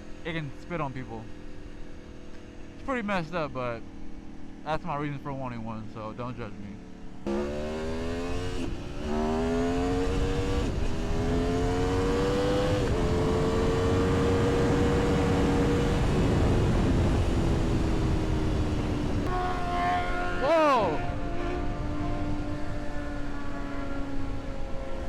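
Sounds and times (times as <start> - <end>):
motorcycle engine accelerating: 6.8 - 25.0.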